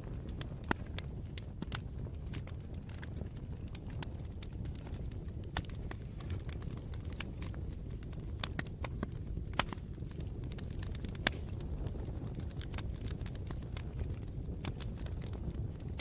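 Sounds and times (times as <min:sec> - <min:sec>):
burning wood crackling and popping: 0:00.0 - 0:16.0
low rumble of flames: 0:00.0 - 0:16.0.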